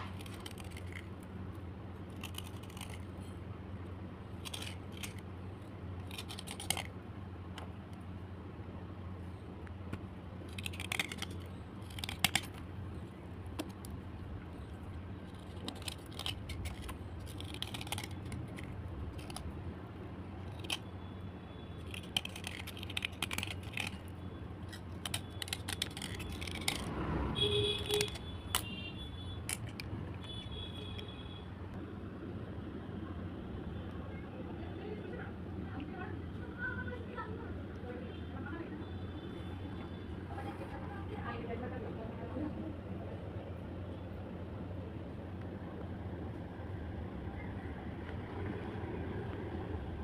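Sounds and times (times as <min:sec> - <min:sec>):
pencils scraping: 0:00.0 - 0:03.4, 0:04.3 - 0:07.0, 0:10.4 - 0:19.6, 0:20.3 - 0:20.9, 0:21.8 - 0:31.1
steady low hum: 0:00.0 - 0:50.0.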